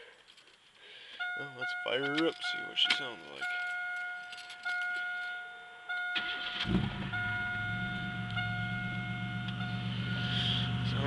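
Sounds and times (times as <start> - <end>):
high-pitched tone: 1.2 - 11.0
car engine starting and idling: 5.9 - 11.0.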